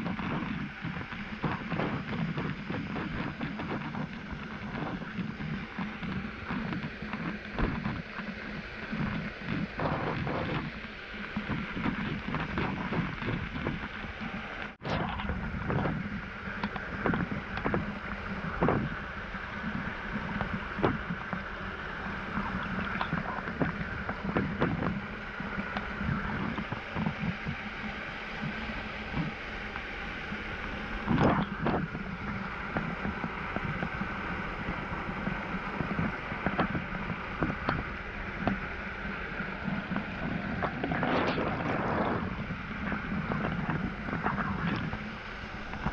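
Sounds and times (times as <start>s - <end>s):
water splashing: 31.0s - 45.9s.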